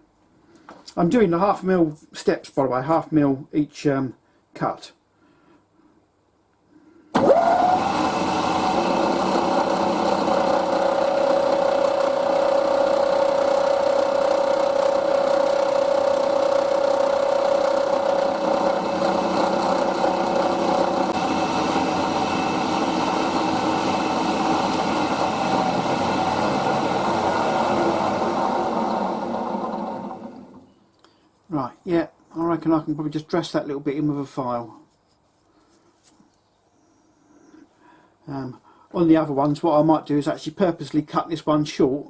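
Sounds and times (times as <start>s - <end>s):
milling machine cutting metal: 7.3s - 30.6s.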